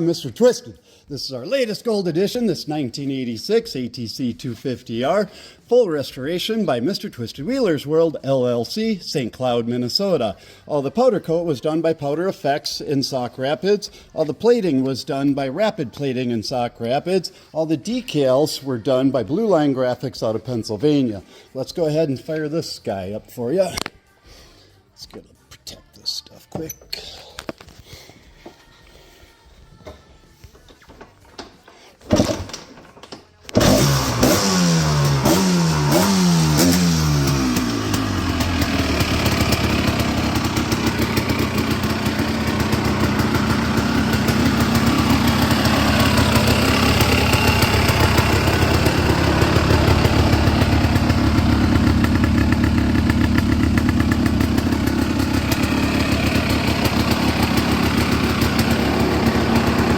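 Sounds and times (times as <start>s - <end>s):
two-stroke engine starting and revving: 32.1s - 32.6s, 33.5s - 59.9s.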